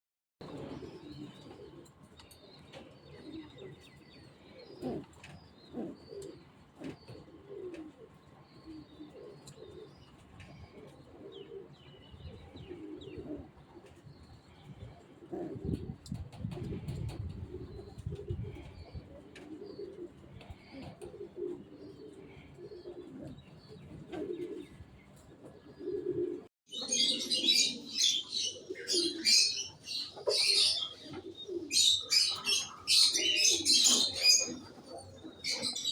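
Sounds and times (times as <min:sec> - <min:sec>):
pigeons cooing: 0:00.4 - 0:35.9
small birds chirping: 0:26.7 - 0:35.9.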